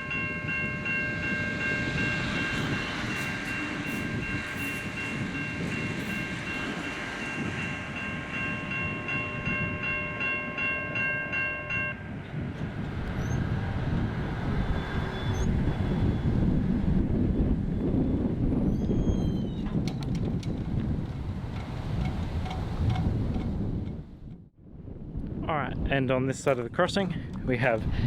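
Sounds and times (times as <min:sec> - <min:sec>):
level crossing bells ringing: 0:00.0 - 0:12.0.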